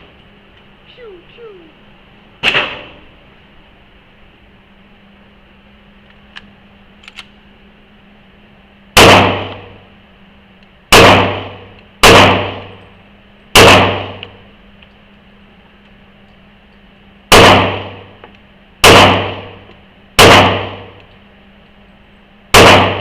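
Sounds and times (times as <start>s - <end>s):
handgun shots echoing indoors: 20.2s - 20.9s, 22.5s - 23.0s.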